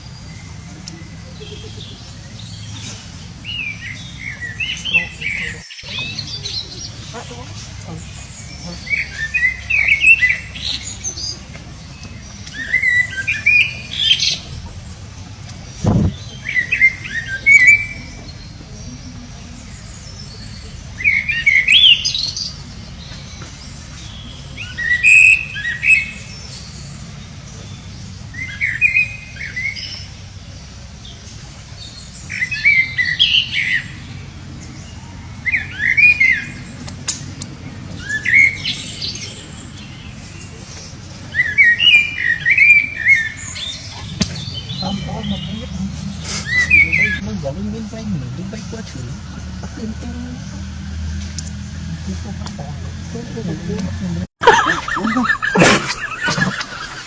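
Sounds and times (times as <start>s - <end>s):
low thump: 15.8s - 16.2s.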